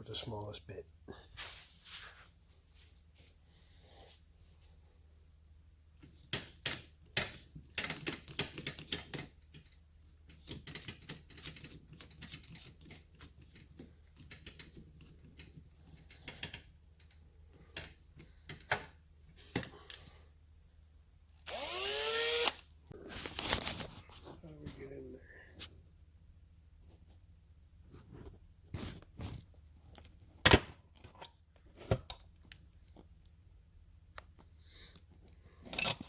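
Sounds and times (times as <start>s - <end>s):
power drill motor spinning up: 21.4s - 22.7s
power drill clicks: 21.5s - 22.6s.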